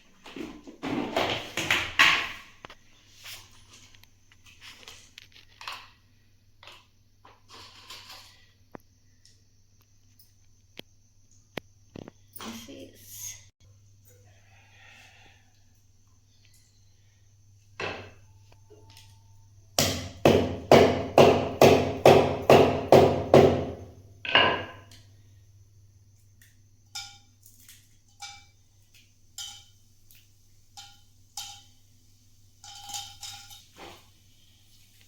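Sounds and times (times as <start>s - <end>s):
heavy knocks of kitchen utensils: 19.8s - 24.8s.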